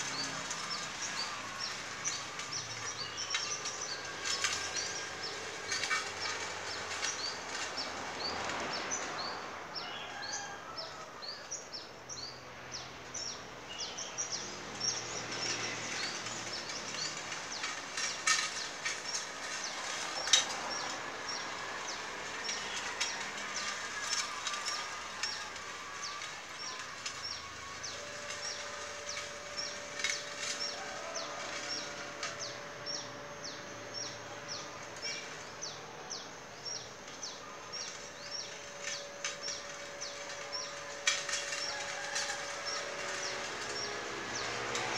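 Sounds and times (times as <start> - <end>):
light outdoor hiss: 0.0 - 44.9
small birds chirping: 11.3 - 44.9.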